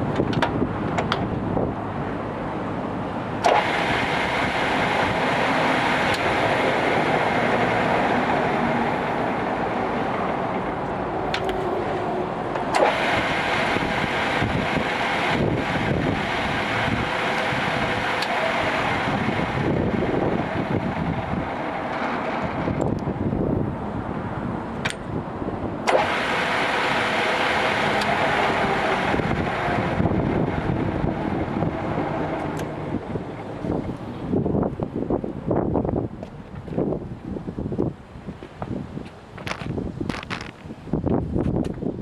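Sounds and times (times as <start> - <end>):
lathe whirring: 3.4 - 22.9, 25.9 - 34.1.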